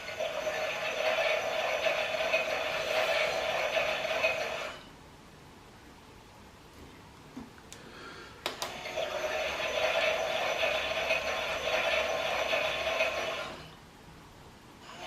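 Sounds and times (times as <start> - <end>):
toy motor whirring with rattle: 0.0 - 4.8, 8.8 - 13.7.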